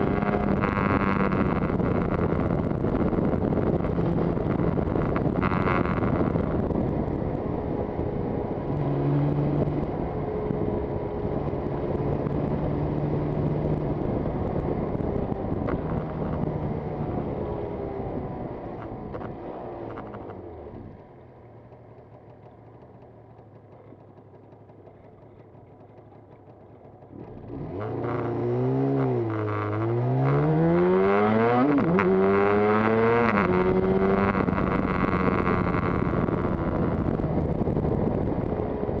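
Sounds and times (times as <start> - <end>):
wind rushing over microphone: 0.0 - 19.4, 28.3 - 39.0
motorcycle engine revving: 0.0 - 21.0, 22.0 - 39.0.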